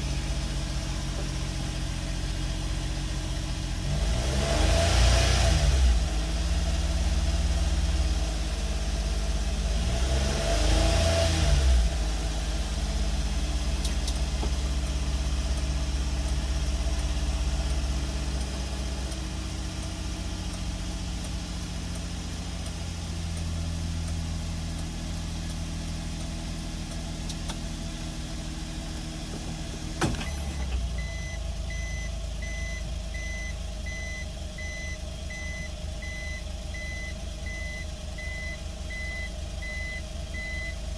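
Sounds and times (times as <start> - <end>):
truck engine idling and revving: 0.0 - 40.9
click: 13.8 - 14.9, 24.8 - 28.4
reverse warning beeps: 30.1 - 40.8.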